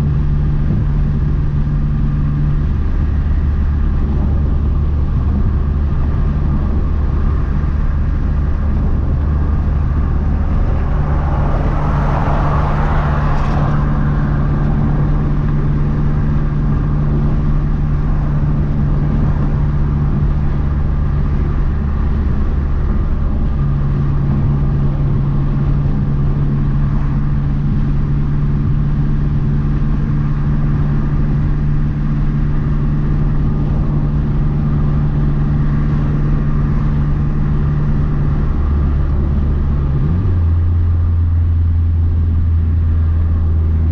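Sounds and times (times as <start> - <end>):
car engine running: 0.0 - 43.9
road noise: 0.0 - 43.9
brief rushing swell: 9.5 - 15.5.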